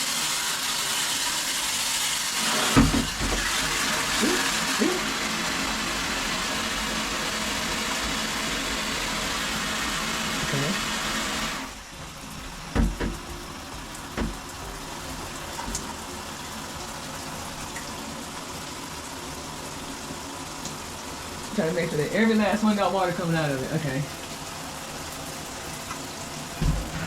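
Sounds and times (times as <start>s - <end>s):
water spraying from shower head: 0.0s - 17.6s, 20.5s - 27.0s
short knocks: 12.7s - 14.6s, 26.6s - 27.0s.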